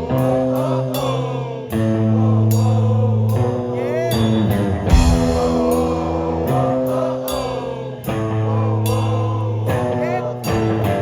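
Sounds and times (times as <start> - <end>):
distorted electric guitar chords: 0.0 - 11.0
person singing: 0.0 - 11.0
drums: 3.3 - 11.0.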